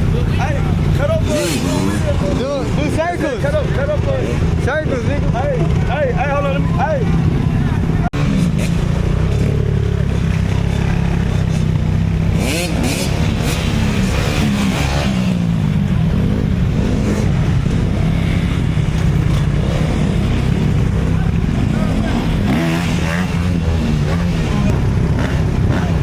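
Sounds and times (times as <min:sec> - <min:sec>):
dirt bike engine running: 0:00.0 - 0:26.0.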